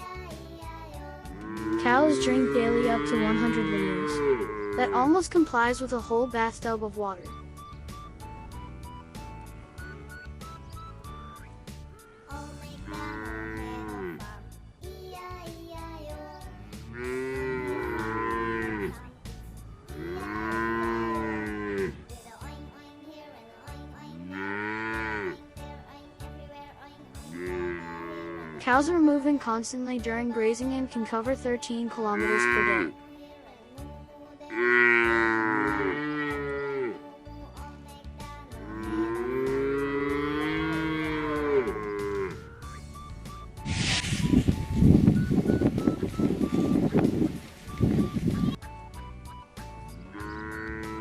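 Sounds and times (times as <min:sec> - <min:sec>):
background music: 0:00.0 - 0:51.0
cows mooing: 0:01.2 - 0:05.2, 0:07.3 - 0:14.4, 0:16.6 - 0:19.0, 0:19.8 - 0:22.1, 0:24.1 - 0:25.4, 0:27.2 - 0:28.6, 0:32.2 - 0:32.9, 0:34.5 - 0:37.0, 0:38.5 - 0:42.8, 0:50.0 - 0:51.0.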